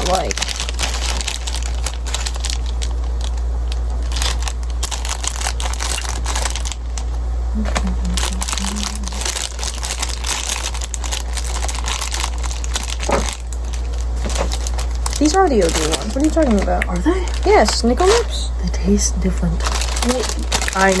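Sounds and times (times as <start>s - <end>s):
packaging crinkling: 0.0s - 21.0s
steady low hum: 0.0s - 21.0s.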